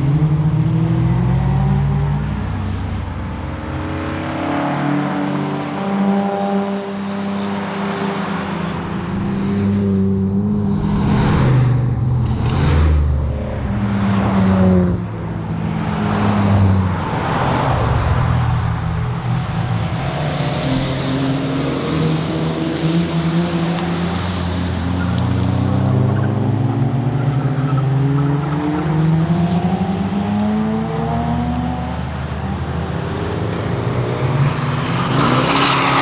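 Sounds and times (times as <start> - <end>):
car engine revving through gears: 15.8 - 36.0.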